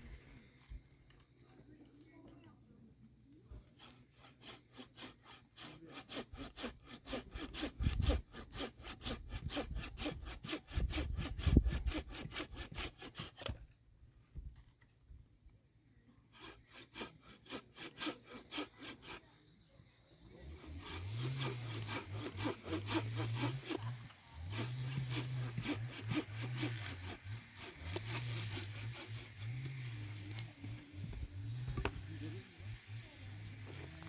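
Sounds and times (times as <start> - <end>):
hand saw cutting wood: 3.6 - 13.8, 16.3 - 19.4, 20.3 - 34.0.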